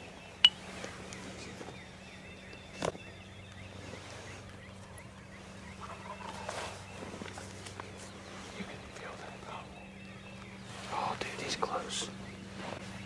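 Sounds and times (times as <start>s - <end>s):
small birds chirping: 0.0s - 13.0s
turkey gobbling: 5.8s - 6.8s.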